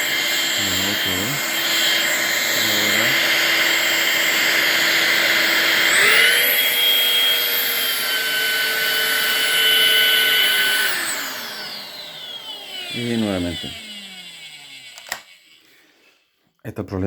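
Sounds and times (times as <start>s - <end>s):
cordless vacuum whine: 0.0s - 16.1s.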